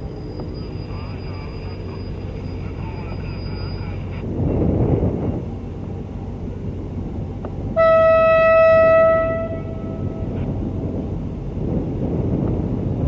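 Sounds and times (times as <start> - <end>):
low steady rumble: 0.0 - 13.0
locomotive horn blast: 7.7 - 10.4.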